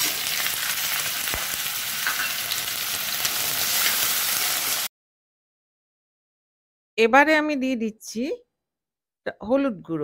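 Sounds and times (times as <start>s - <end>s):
shrimps sizzling in hot oil: 0.0s - 4.9s.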